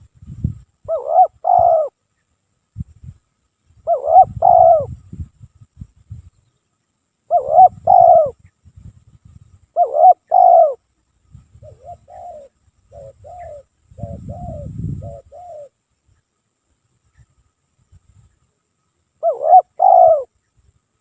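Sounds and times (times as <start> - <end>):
dove cooing: 0.9 - 2.0, 3.8 - 5.0, 7.3 - 8.4, 9.8 - 10.8, 11.6 - 15.8, 19.2 - 20.3.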